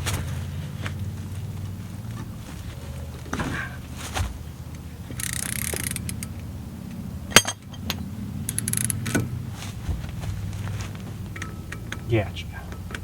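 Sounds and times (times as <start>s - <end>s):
hand tools clicking on metal: 5.1s - 6.5s, 7.4s - 9.2s.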